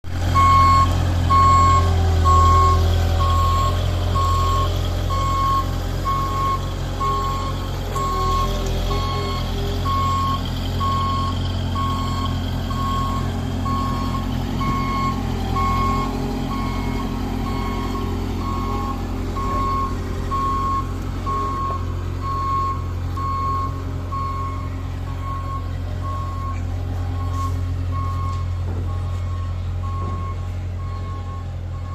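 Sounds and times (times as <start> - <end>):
diesel engine drone: 0.0 - 31.9
reversing alarm beeping: 0.4 - 31.9.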